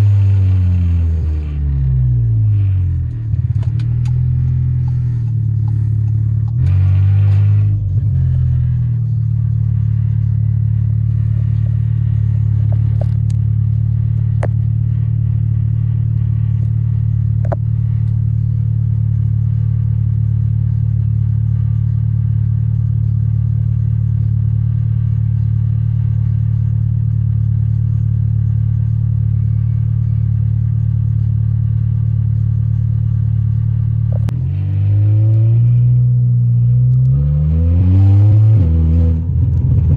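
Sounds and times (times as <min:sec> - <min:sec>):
car engine droning: 0:00.0 - 0:39.9.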